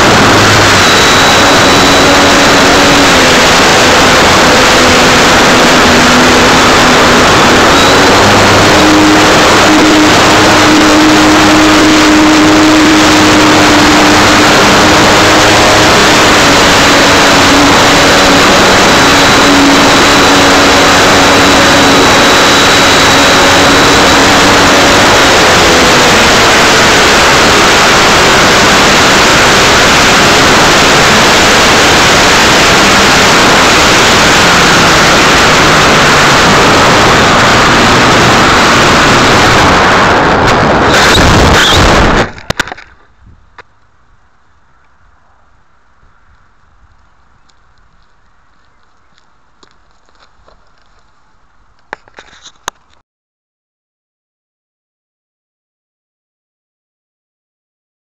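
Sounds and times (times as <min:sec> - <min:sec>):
model plane motor drone: 0:00.0 - 0:42.2
wind rush: 0:00.0 - 0:44.2
faint high whine: 0:00.0 - 0:52.8.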